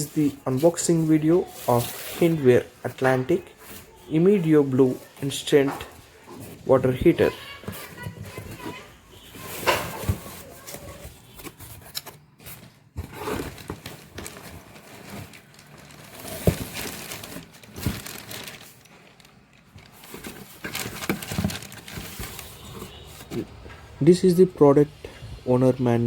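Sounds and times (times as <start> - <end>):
packaging crinkling and rustling: 0.0 - 23.8.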